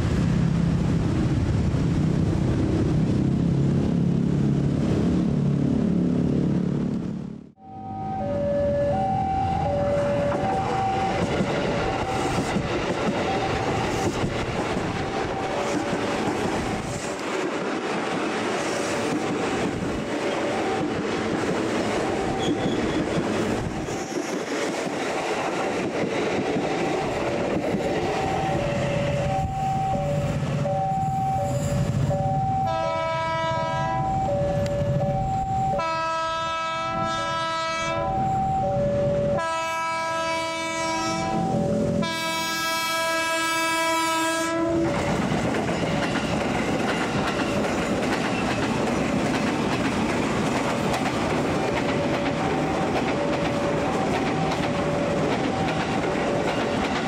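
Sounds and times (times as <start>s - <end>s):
electric trains on rails: 0.0s - 57.0s
level crossing warning signal: 7.6s - 12.5s, 13.1s - 14.2s, 21.9s - 23.9s, 26.8s - 44.1s, 52.0s - 57.0s
train horn blasts: 32.1s - 35.0s, 35.7s - 38.5s, 39.4s - 45.0s.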